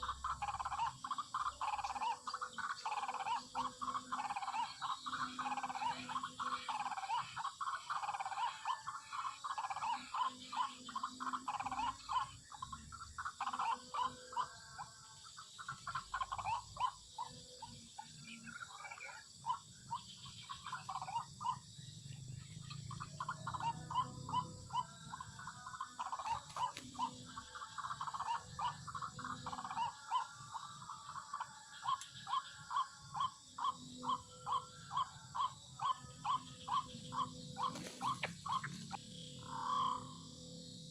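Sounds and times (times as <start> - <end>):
waterhen calling: 22.6 - 40.2.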